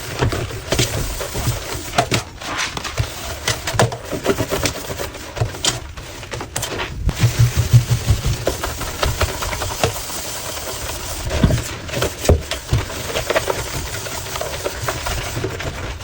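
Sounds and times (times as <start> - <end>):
scrubbing sink scraping strokes: 0.0 - 16.0.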